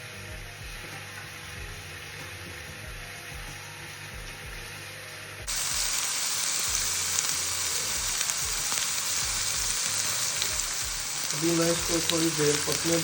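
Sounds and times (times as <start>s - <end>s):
meat sizzling in a pan: 5.4s - 13.0s.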